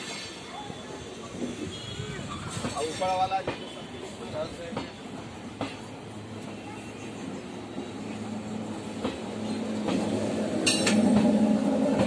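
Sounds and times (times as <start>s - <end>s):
train rumble: 0.0s - 12.0s
train wheels clacking over rail joints: 2.4s - 6.0s, 8.8s - 12.0s.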